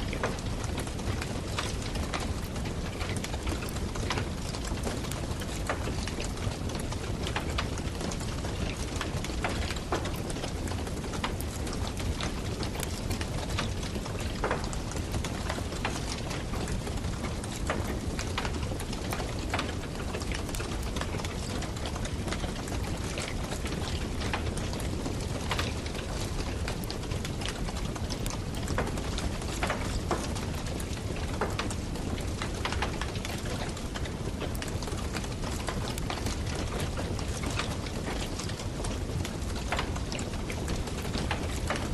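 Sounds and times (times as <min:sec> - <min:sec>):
burning wood crackling: 0:00.1 - 0:41.9.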